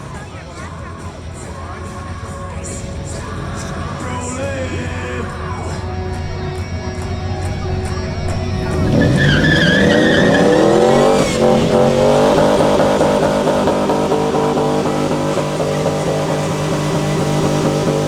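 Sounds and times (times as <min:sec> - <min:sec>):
tires squealing on pavement: 0:01.8 - 0:18.0
car engine revving hard: 0:02.6 - 0:18.0.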